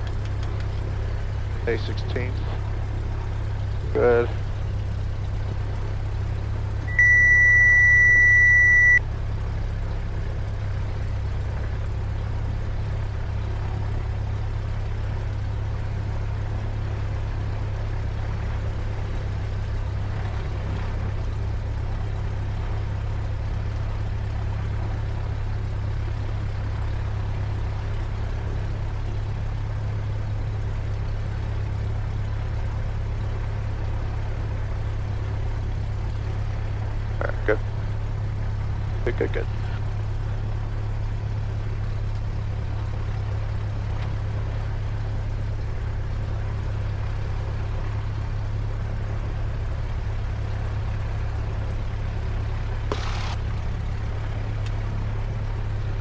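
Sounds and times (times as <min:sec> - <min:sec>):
aircraft engine idling: 0:00.0 - 0:56.0
high-pitched electronic tone: 0:06.9 - 0:09.0.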